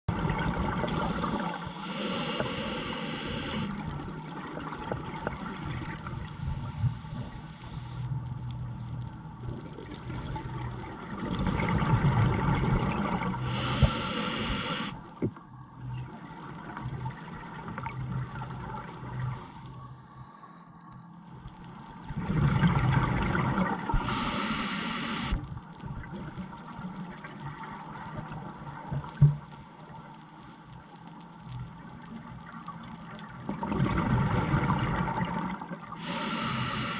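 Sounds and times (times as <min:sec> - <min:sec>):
hissing burst of exhaled bubbles: 0:00.4 - 0:03.9, 0:11.6 - 0:15.0, 0:22.4 - 0:25.4, 0:33.7 - 0:36.9
diver breathing through regulator: 0:00.8 - 0:03.8, 0:06.2 - 0:08.1, 0:13.4 - 0:15.0, 0:24.0 - 0:25.4, 0:36.0 - 0:36.9.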